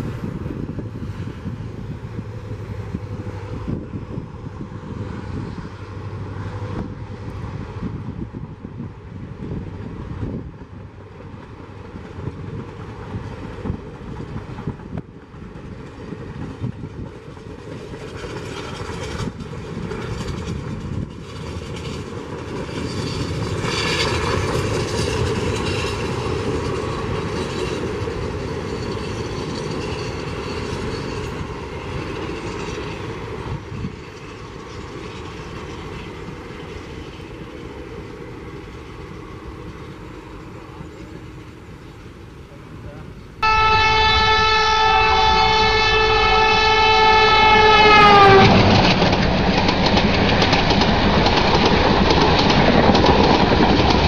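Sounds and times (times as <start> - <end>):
train coaches rolling past: 0.0 - 54.0
wheels clicking over rail joints: 48.0 - 54.0.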